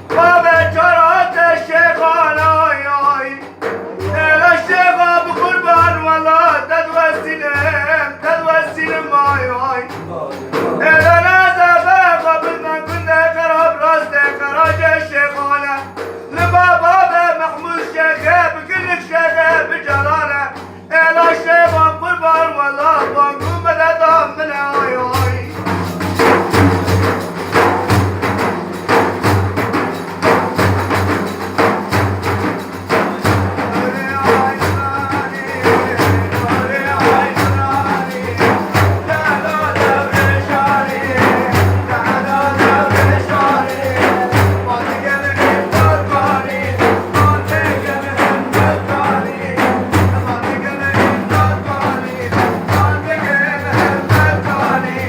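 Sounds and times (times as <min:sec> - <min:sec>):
frame drum with jingles: 0:00.0 - 0:55.0
person chanting melodically: 0:32.9 - 0:55.0.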